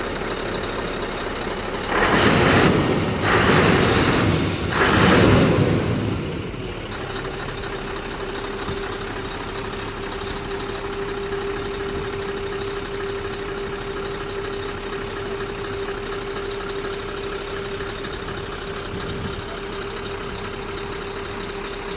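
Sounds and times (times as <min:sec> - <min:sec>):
diesel engine idling: 0:00.0 - 0:21.9
loud rush of noise: 0:01.9 - 0:07.4.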